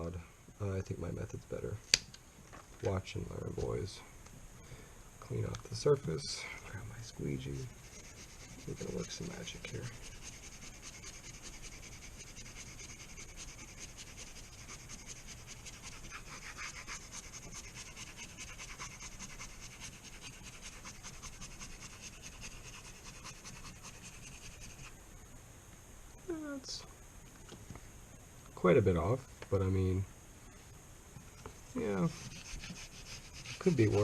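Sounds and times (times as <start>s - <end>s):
squeegee scraping over vinyl: 7.7s - 24.8s, 31.9s - 34.0s.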